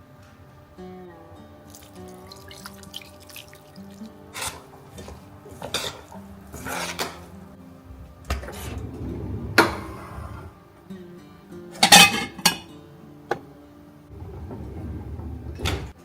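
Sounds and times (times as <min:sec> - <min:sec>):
dishes and cutlery clinking: 0:01.7 - 0:10.5, 0:11.8 - 0:12.7, 0:14.1 - 0:16.0.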